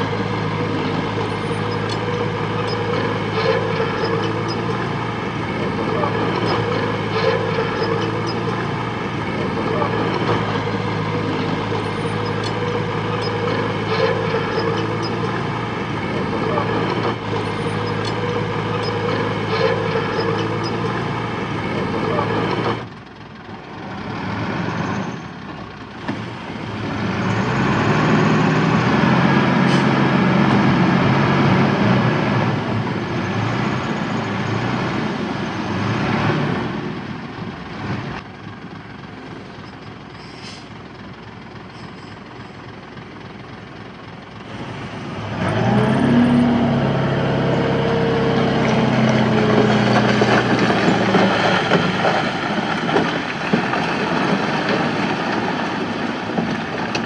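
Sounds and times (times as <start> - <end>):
heavy diesel machinery engine: 0.0 - 57.0.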